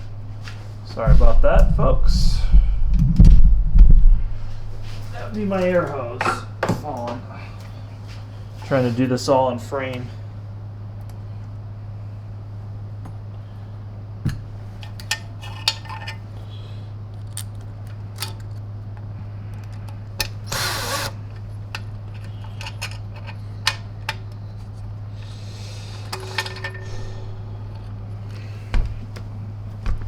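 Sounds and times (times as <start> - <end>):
steady low hum: 0.0 - 30.0
power screwdriver driving screws: 20.3 - 21.2.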